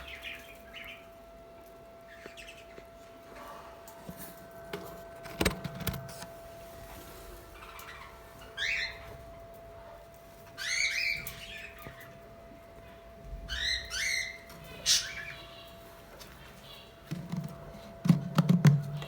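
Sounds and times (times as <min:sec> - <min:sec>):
budgerigars chirping: 0:00.0 - 0:01.2, 0:02.1 - 0:02.9, 0:07.6 - 0:09.2, 0:10.5 - 0:12.2, 0:13.5 - 0:15.8
faint steady hum: 0:00.0 - 0:19.0.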